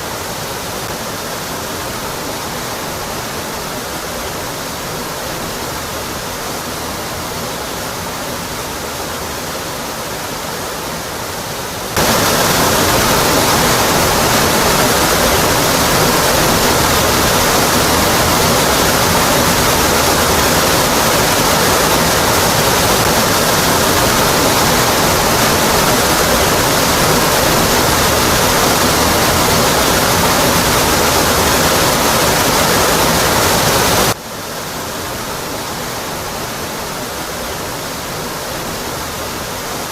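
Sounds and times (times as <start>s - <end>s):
waterfall rushing onto rock: 11.9s - 39.9s.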